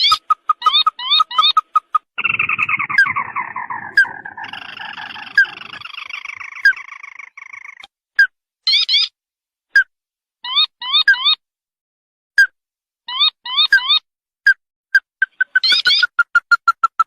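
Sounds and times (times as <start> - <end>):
bird calls with trills: 0.0 - 9.1, 15.0 - 17.0.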